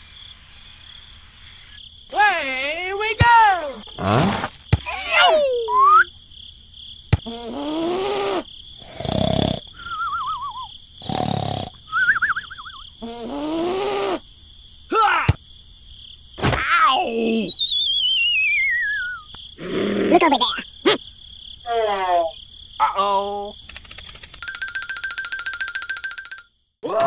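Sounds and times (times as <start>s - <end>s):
squeaky gibberish cartoon voices: 16.8s - 21.0s
warbling whistle glides: 17.6s - 19.3s.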